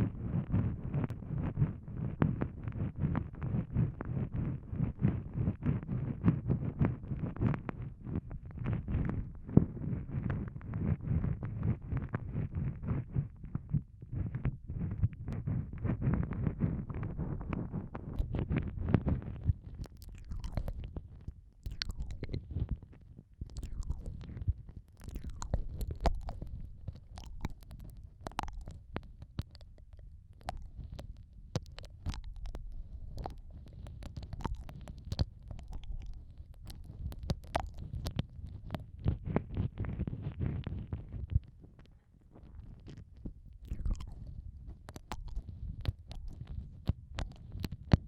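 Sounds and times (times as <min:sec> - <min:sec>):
low muffled rumble: 0:00.0 - 0:48.0
wet mouth clicks and smacks: 0:19.4 - 0:22.6, 0:23.4 - 0:39.2, 0:42.6 - 0:48.0.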